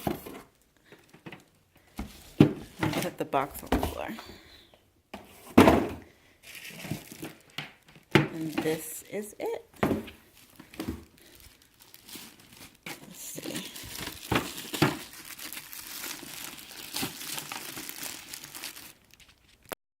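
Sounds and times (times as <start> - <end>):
packaging crinkling and rustling: 6.4 - 9.2, 9.8 - 19.8.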